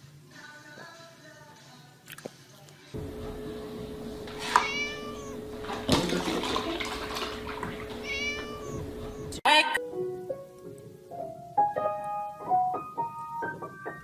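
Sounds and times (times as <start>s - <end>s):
faint steady hum: 3.0s - 9.4s
milk pouring into plastic tub: 3.8s - 9.0s
kitten meowing: 4.2s - 5.9s, 7.4s - 9.4s.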